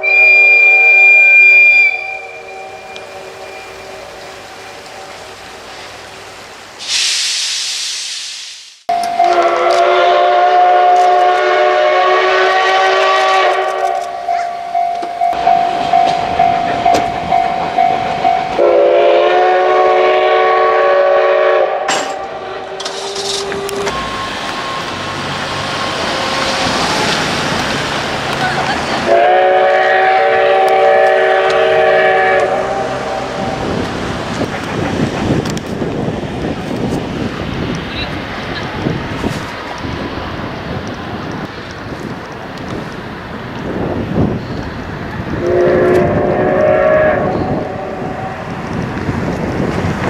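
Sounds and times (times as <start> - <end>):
steam whistle chord blasts: 0.0 - 5.4, 8.9 - 22.9, 29.1 - 33.7, 45.4 - 48.5
rushing steam hiss: 0.0 - 8.9, 10.1 - 50.0.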